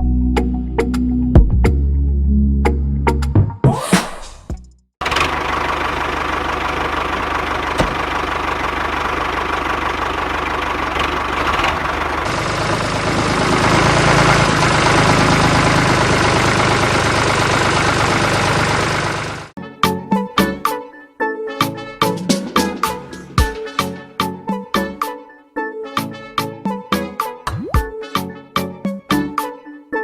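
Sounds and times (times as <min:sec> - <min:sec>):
small engine running: 0:05.0 - 0:19.6.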